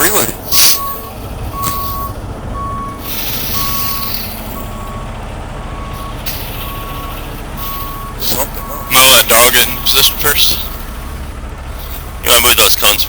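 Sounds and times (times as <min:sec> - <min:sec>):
diesel engine running: 0:00.0 - 0:13.0
truck backup alarm beeping: 0:00.0 - 0:13.0.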